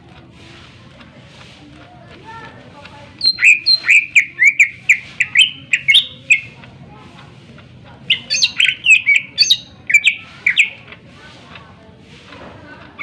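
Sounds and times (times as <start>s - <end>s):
bird singing sharp whistled notes: 3.2s - 6.5s, 8.1s - 10.7s.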